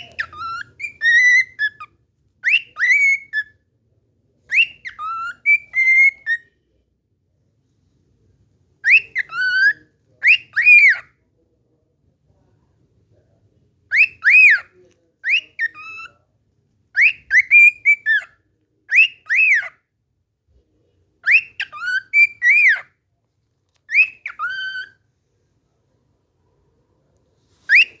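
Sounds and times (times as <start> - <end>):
cockatiel whistling a tune: 0.0 - 3.6, 4.5 - 6.4, 8.8 - 11.1, 13.9 - 16.1, 17.0 - 18.3, 18.9 - 19.8, 21.2 - 22.9, 23.9 - 25.0, 27.7 - 28.0.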